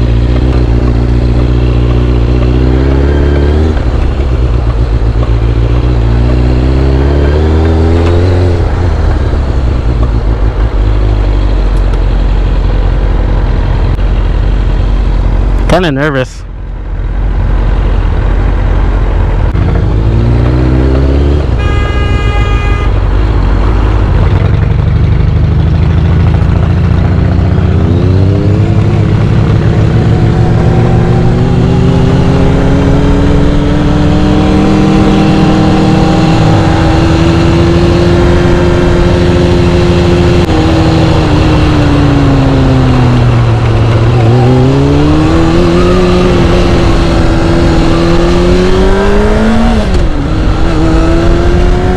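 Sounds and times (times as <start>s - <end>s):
motorcycle engine revving: 0.0s - 16.1s, 17.0s - 51.9s
man talking: 15.6s - 16.4s
vehicle horn: 21.5s - 23.2s.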